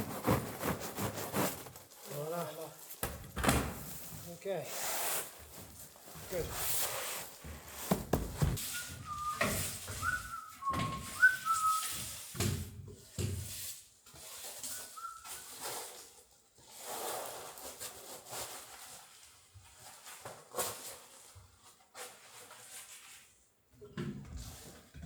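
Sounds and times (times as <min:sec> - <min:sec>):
knocks and handling noises: 0:07.4 - 0:11.7
person whistling: 0:08.6 - 0:12.0, 0:14.7 - 0:15.5.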